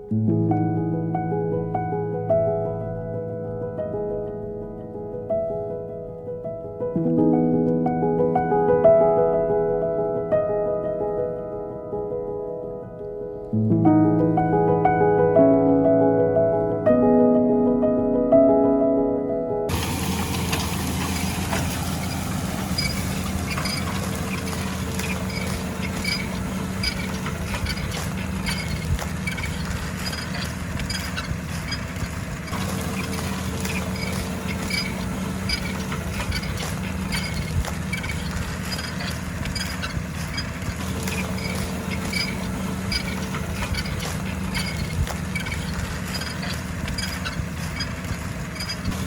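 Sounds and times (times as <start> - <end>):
tractor diesel engine running: 19.7 - 49.0
light repeated ticking: 21.9 - 49.0.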